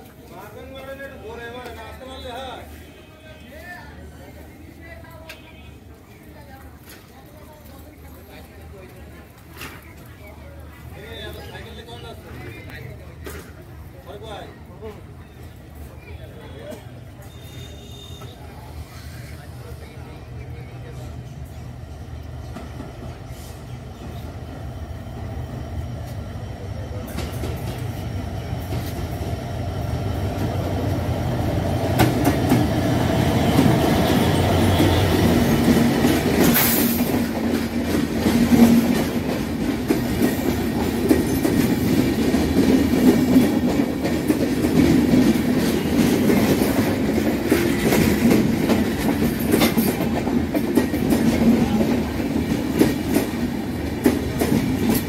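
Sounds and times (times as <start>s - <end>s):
diesel locomotive engine rumble: 8.0s - 55.0s
train wheels clickety-clack: 22.3s - 55.0s.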